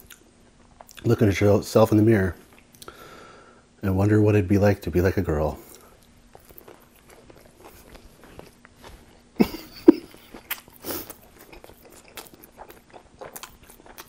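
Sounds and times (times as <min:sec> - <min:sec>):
chewing with wet mouth clicks: 0:05.6 - 0:08.9, 0:10.1 - 0:14.0.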